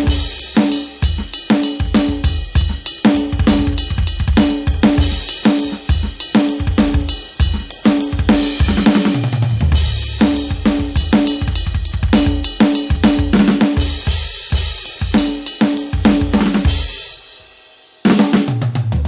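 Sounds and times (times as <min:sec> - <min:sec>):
electronic drum kit groove: 0:00.0 - 0:19.0.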